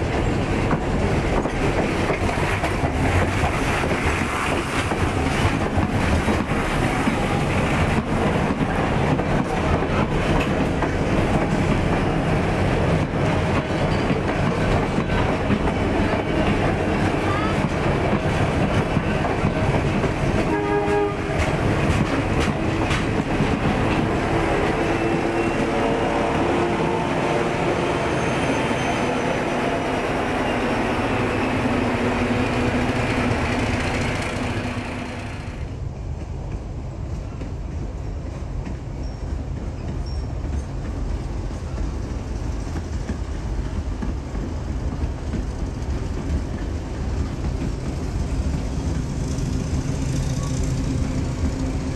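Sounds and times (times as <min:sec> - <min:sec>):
low train rumble: 0:00.0 - 0:51.9
train wheels clattering: 0:00.0 - 0:51.9
locomotive horn: 0:20.3 - 0:21.7, 0:24.2 - 0:35.5.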